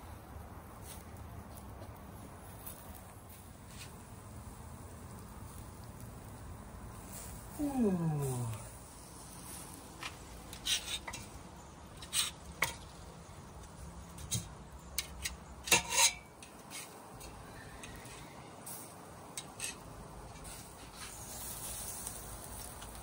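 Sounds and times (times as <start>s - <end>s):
metal grill utensils clinking: 10.6s - 13.0s, 14.2s - 18.2s, 19.3s - 19.8s.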